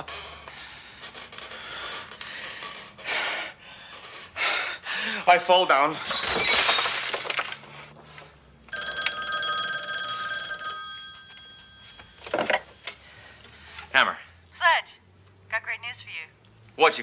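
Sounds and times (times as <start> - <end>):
crash: 6.1 - 7.9
telephone bell ringing: 8.7 - 13.3.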